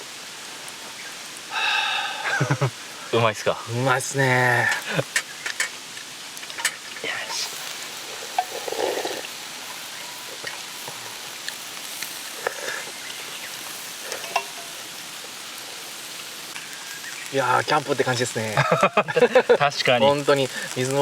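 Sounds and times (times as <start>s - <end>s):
stream water rushing: 5.8s - 16.7s.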